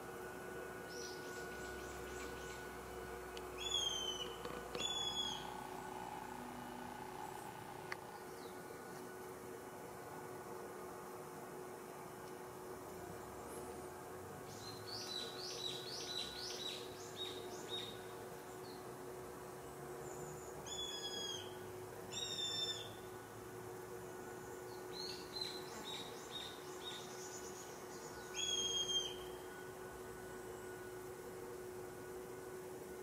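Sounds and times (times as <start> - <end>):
faint steady hum: 0.0 - 33.0
birds calling: 3.5 - 5.5.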